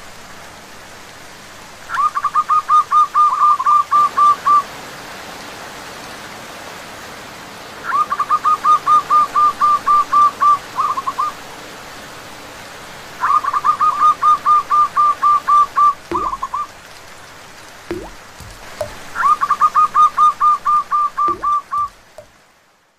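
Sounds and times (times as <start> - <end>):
rain and running water: 0.0 - 22.9
dove cooing: 13.2 - 16.7, 19.2 - 22.0
soft knocks: 16.1 - 16.5, 17.9 - 19.1, 21.3 - 22.3.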